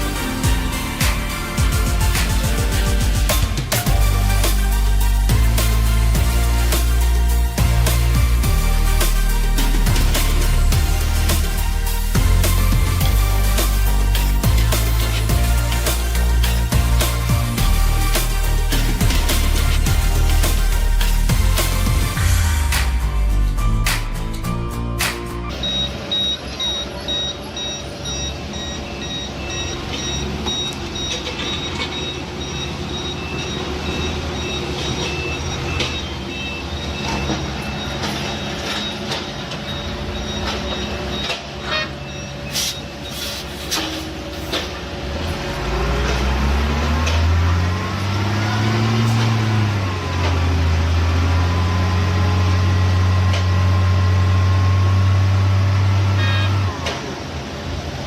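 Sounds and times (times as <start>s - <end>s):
heavy machinery engines running: 0.0s - 58.0s
reversing alarm beeping: 25.5s - 44.7s, 45.4s - 57.4s.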